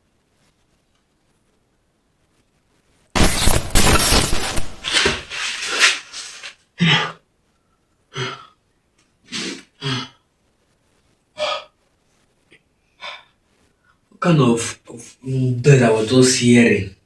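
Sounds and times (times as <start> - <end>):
loud crash: 3.2 - 6.5
person gasping and breathing hard: 4.8 - 7.2, 8.1 - 8.5, 9.3 - 10.2, 11.4 - 11.7, 13.0 - 13.3.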